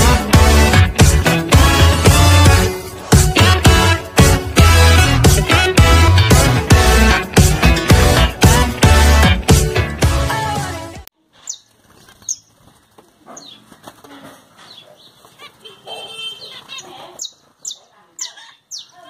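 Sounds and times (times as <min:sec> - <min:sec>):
music track: 0:00.0 - 0:11.1
small birds chirping: 0:11.2 - 0:19.0
wings fluttering: 0:11.3 - 0:17.7.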